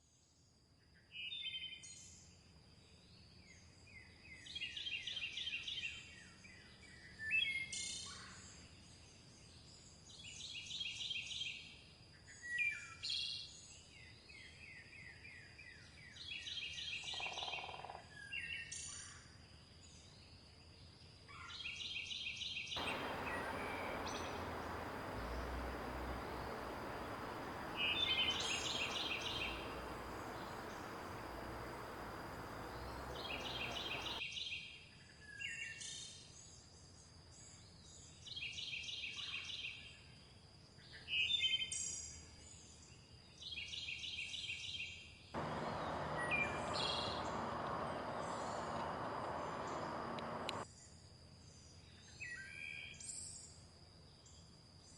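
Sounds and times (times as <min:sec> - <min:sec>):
bird trilled call: 0:22.8 - 0:34.2
birds chirping: 0:22.8 - 0:34.2, 0:45.4 - 0:50.6
faint high whine: 0:22.8 - 0:34.2, 0:45.4 - 0:50.6
river rushing: 0:22.8 - 0:34.2, 0:45.4 - 0:50.6.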